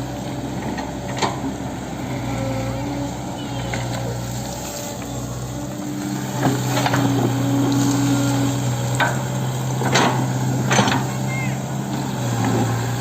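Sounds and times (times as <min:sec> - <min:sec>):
excavator diesel engine running: 0:00.0 - 0:13.0
short knocks and clatters: 0:08.9 - 0:11.1.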